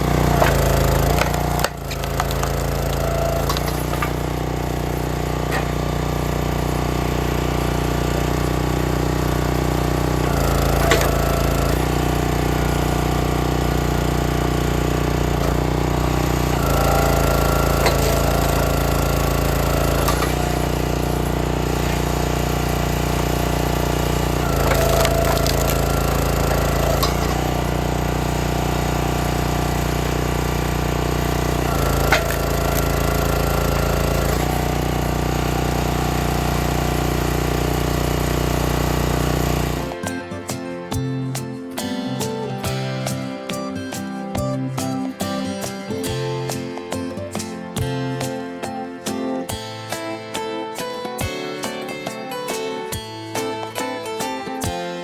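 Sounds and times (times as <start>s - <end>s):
log splitter engine running: 0.0s - 46.8s
wood cracking as it splits: 0.1s - 4.9s, 10.1s - 12.1s, 15.3s - 22.4s, 24.4s - 28.8s, 31.2s - 35.0s.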